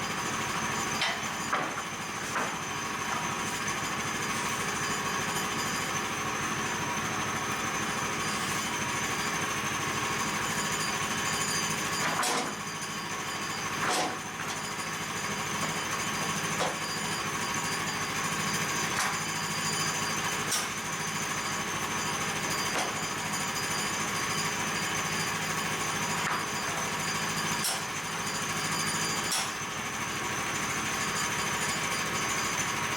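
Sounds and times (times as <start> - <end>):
sawmill engine pulsing: 0.0 - 32.9
saw blade cutting boards: 0.9 - 5.9, 29.2 - 29.6.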